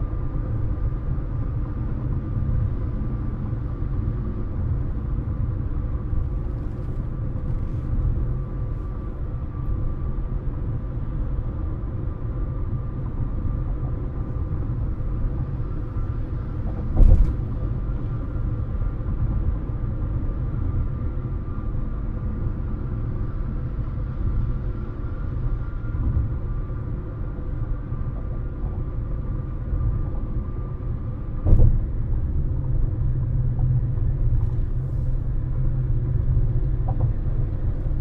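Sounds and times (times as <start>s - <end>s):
car thumping over bump: 16.7s - 17.6s, 31.4s - 31.9s.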